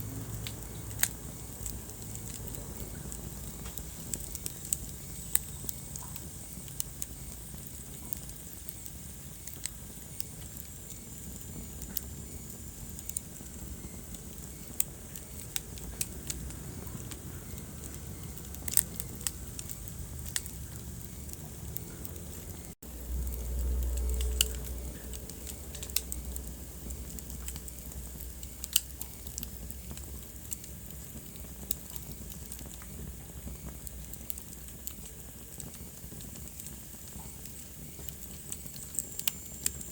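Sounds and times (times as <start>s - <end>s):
wood fire crackling: 0.0s - 39.9s
low rumble: 15.0s - 29.6s.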